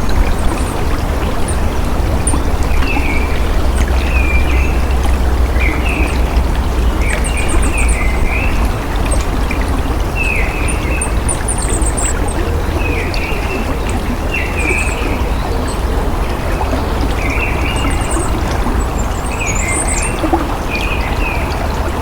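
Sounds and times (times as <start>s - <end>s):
bird calls: 0.0s - 21.8s
running water: 0.0s - 22.0s
high rapid bird chirps: 7.0s - 13.6s.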